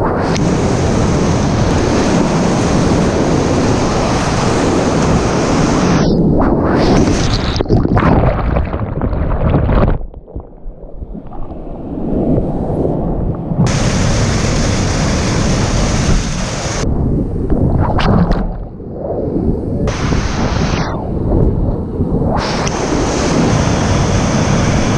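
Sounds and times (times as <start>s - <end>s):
wind buffeting microphone: 0.0s - 24.9s
rushing whitewater: 13.7s - 16.8s.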